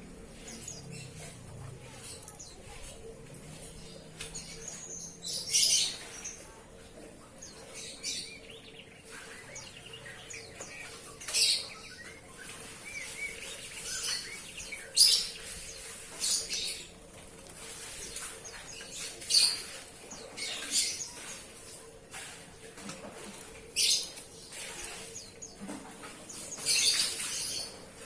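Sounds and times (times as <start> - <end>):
bird chirping and calling: 3.6 - 6.5, 7.4 - 17.0, 17.6 - 21.4, 23.8 - 27.8.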